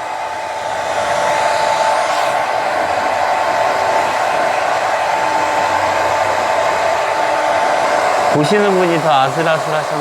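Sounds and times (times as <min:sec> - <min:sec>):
hair dryer running: 0:00.0 - 0:10.0.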